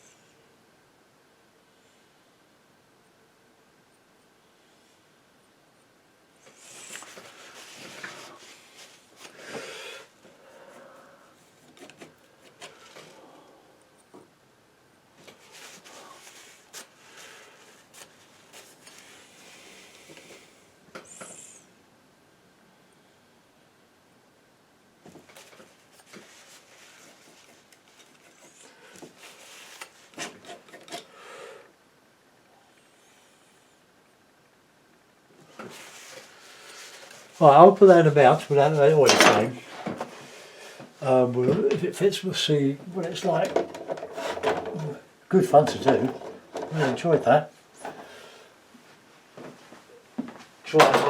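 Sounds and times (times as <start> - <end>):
scraping and rubbing: 25.4 - 31.1, 43.3 - 47.0.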